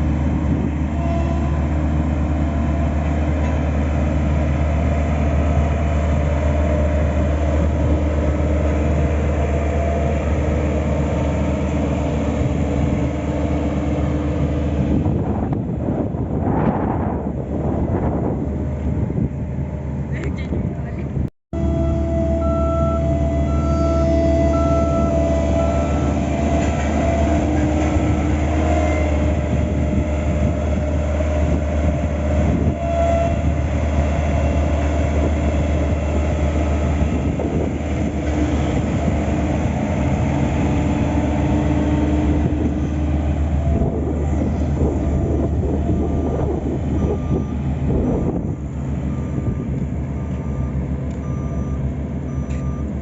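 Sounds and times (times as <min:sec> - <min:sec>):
heavy diesel engines running: 0:00.0 - 0:53.0
reversing alarm beeping: 0:21.6 - 0:26.3, 0:45.1 - 0:53.0.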